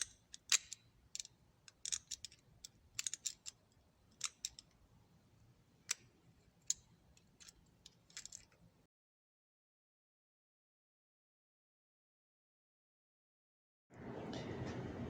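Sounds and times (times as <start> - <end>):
metallic clicks of ratchet parts: 0.0 - 8.7.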